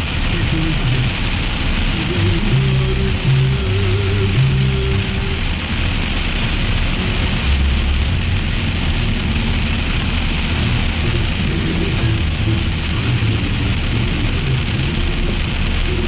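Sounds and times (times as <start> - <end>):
heavy rain on car roof: 0.0 - 16.0
moving car rumble: 0.0 - 16.0.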